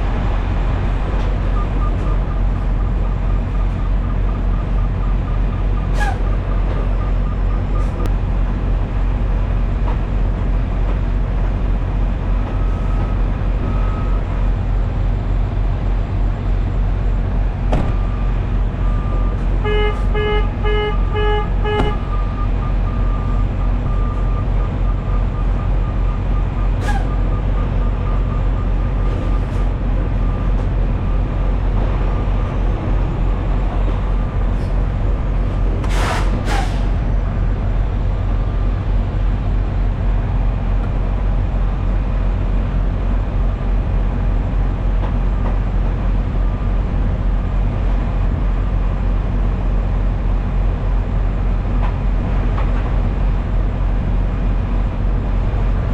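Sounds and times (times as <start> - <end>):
diesel truck engine running: 0.0 - 55.9
air brake hiss: 26.8 - 27.1, 35.8 - 36.9.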